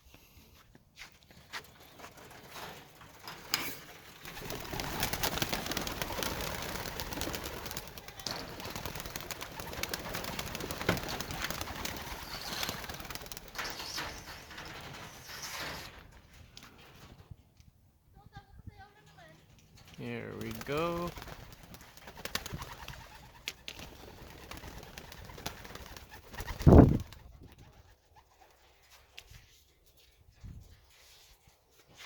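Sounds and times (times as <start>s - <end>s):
clatter of wings and feet: 1.0s - 17.4s, 19.4s - 31.0s
pigeons cooing: 4.3s - 16.0s.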